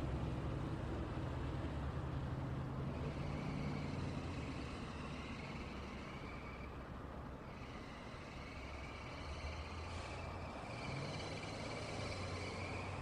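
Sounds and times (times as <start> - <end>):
passing cars and trucks rumbling: 0.0 - 13.0.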